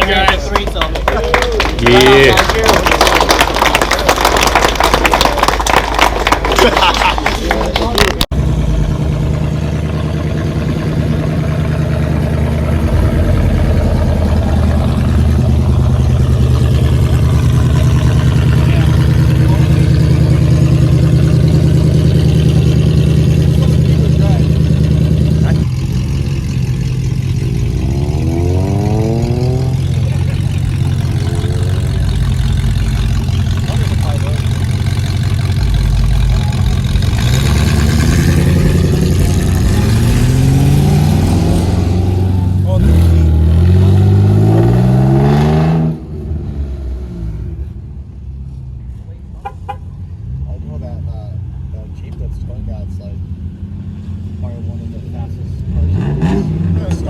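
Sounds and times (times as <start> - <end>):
car engine idling: 0.0 - 44.5.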